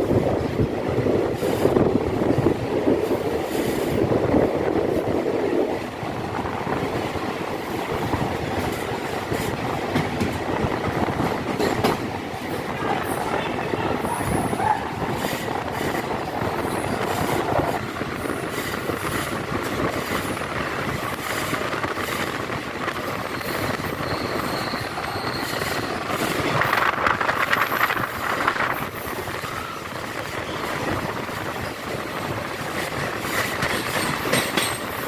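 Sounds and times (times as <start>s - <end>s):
train wheels rattling on rails: 0.0s - 35.0s
wheels squealing: 23.1s - 28.2s.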